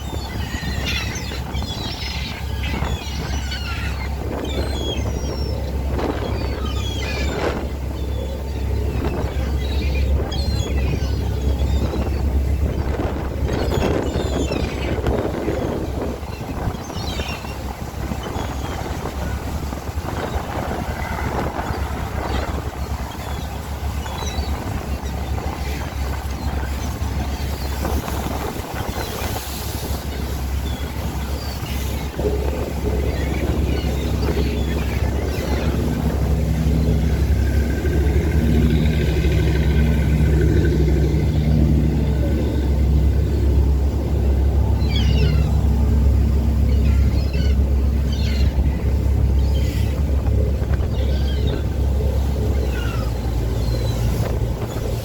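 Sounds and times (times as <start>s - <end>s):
boat engine droning: 0.0s - 55.0s
steady low rumble: 0.0s - 55.0s
wind buffeting microphone: 0.0s - 55.0s.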